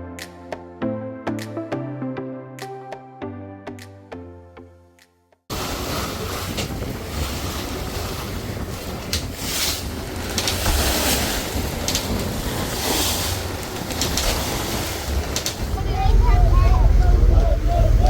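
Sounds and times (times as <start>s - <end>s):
rushing water: 5.5s - 18.0s
steady low rumble: 5.5s - 18.0s
wind buffeting microphone: 5.5s - 18.0s.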